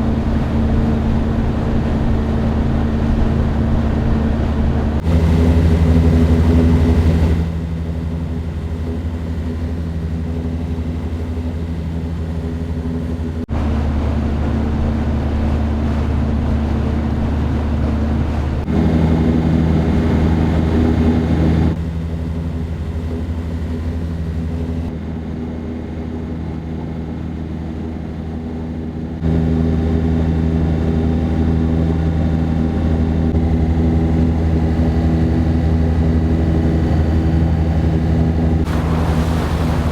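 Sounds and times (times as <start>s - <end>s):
boat motor humming: 0.0s - 39.9s.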